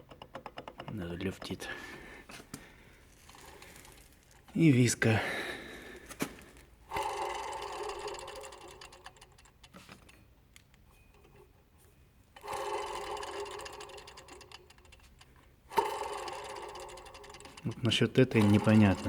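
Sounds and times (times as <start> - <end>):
pulley bearing whirring: 6.5 - 10.3, 12.3 - 19.0.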